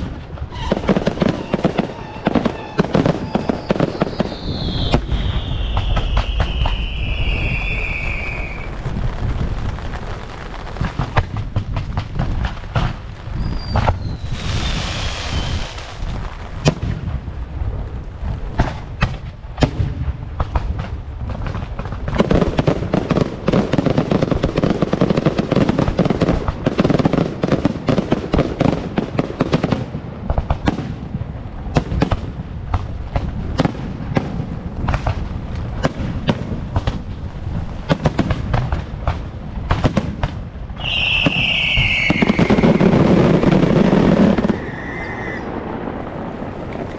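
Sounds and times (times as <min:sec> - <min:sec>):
firecrackers crackling: 0:00.0 - 0:46.9
fireworks banging: 0:00.0 - 0:46.9
falling firework whistle: 0:00.4 - 0:09.0, 0:13.2 - 0:16.0, 0:40.8 - 0:46.1.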